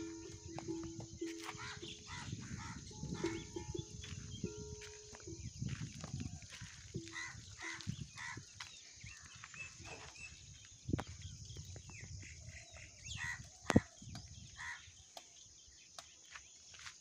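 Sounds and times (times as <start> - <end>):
bird and fowl calls: 0.0 - 10.5, 12.2 - 15.2.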